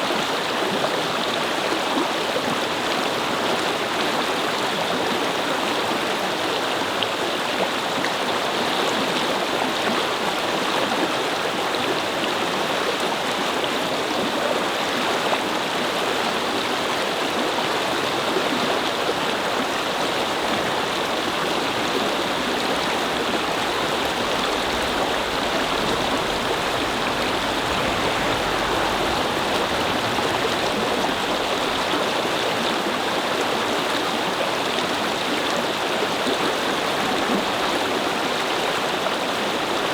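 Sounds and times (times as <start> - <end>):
faint low rumble: 20.2 - 32.8.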